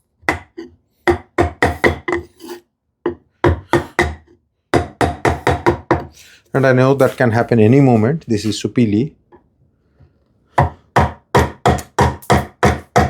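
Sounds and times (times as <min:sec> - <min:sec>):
mallet striking chisel into wood: 0:00.3 - 0:02.3, 0:03.1 - 0:04.2, 0:04.8 - 0:06.1, 0:10.6 - 0:13.0.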